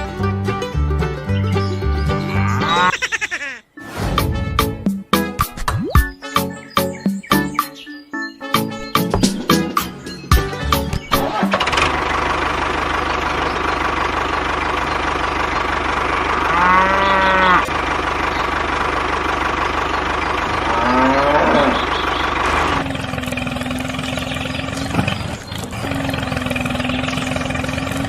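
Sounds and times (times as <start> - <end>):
cow mooing: 2.3 - 2.9, 16.4 - 17.7, 20.5 - 22.0
tractor engine running: 8.7 - 28.0.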